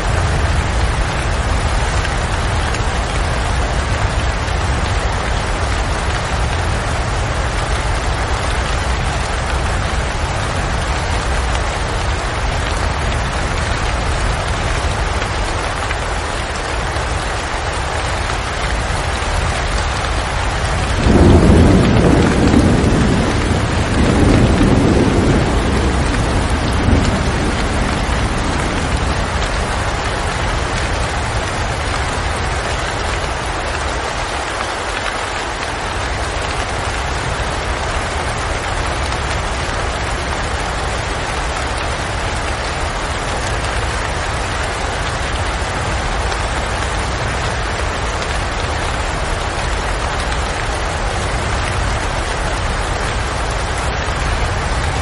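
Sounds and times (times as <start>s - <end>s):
thunder rumbling: 0.0s - 34.4s
heavy rain: 0.0s - 55.0s.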